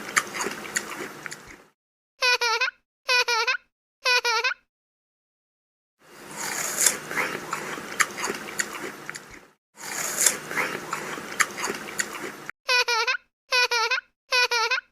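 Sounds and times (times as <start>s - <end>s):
crunchy chewing and biting: 0.0s - 1.7s, 6.1s - 12.5s.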